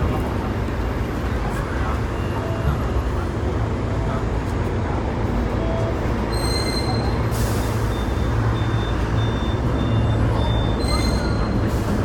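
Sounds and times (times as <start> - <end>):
tram wheels and motor rumbling: 0.0 - 12.0
air brake hiss: 7.3 - 7.9.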